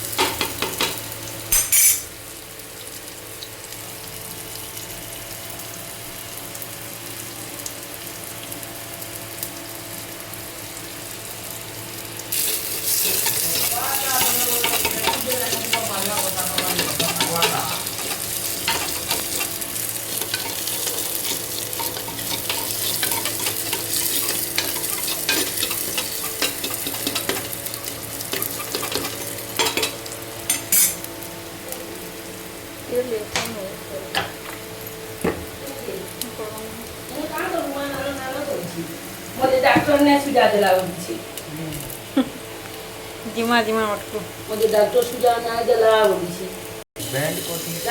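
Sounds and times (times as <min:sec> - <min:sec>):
food sizzling in a pan: 0:00.0 - 0:47.9
spatula scraping a pan: 0:12.4 - 0:31.0.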